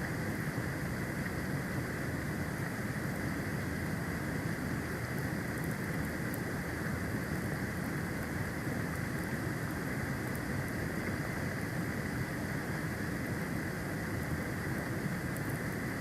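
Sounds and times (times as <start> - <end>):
wind: 0.0 - 16.0
faint ticks: 7.2 - 11.2, 14.1 - 15.9.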